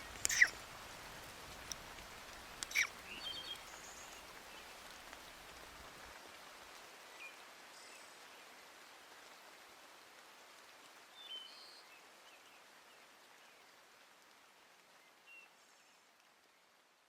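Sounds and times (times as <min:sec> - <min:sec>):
bird chirps: 0:00.0 - 0:00.6, 0:02.6 - 0:04.2
light rain falling: 0:00.0 - 0:17.0.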